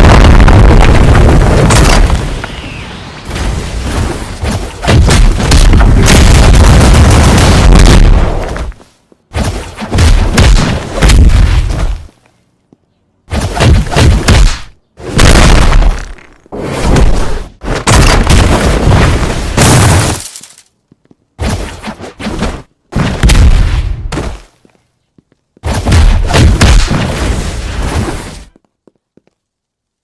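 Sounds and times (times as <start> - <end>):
loud distorted booming bursts: 0.0 - 2.4, 4.8 - 8.4.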